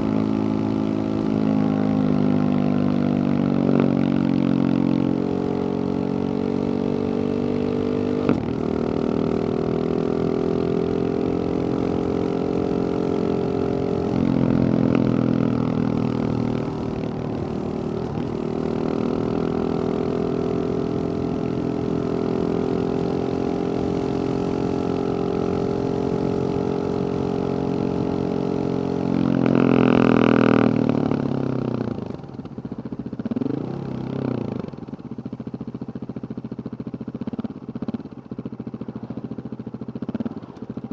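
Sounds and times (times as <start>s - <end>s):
engine revving: 0.0s - 32.2s
motorcycle engine running: 0.0s - 40.9s.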